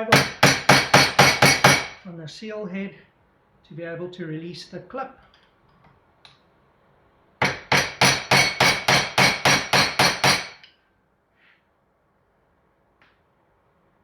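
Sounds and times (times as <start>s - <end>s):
hammer tapping on metal: 0.0s - 2.0s, 7.4s - 10.8s.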